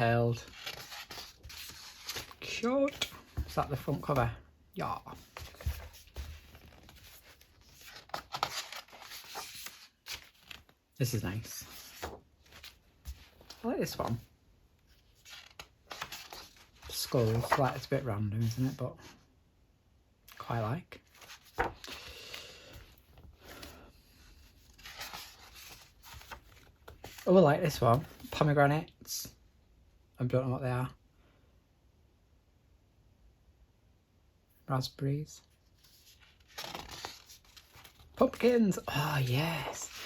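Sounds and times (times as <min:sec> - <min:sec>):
paper pages rustling: 0:00.0 - 0:04.3, 0:05.0 - 0:14.3, 0:15.0 - 0:18.8, 0:20.3 - 0:28.4, 0:35.8 - 0:40.0.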